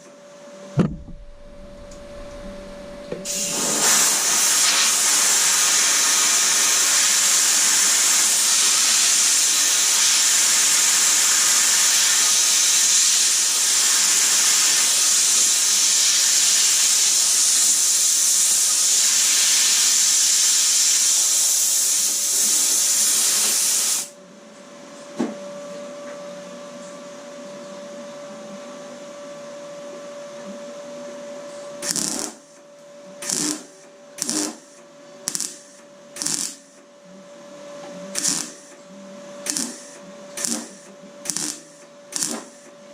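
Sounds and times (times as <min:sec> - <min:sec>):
faint steady hum: 0:00.0 - 0:03.3
compressed air hissing: 0:01.0 - 0:10.3, 0:15.8 - 0:24.1, 0:31.8 - 0:32.5, 0:33.2 - 0:36.8, 0:38.2 - 0:38.7, 0:39.5 - 0:42.6
sharp metallic clicks: 0:33.2 - 0:34.7, 0:35.3 - 0:36.7, 0:39.5 - 0:39.8, 0:41.3 - 0:42.5.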